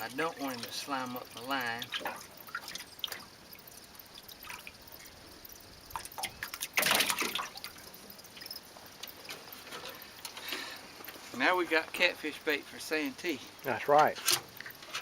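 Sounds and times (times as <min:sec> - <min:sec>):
water dripping and splashing: 0:00.0 - 0:15.0.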